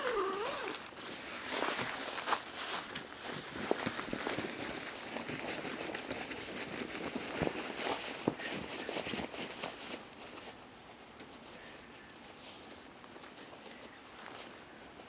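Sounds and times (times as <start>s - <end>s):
footsteps in dry leaves: 0.0s - 10.1s.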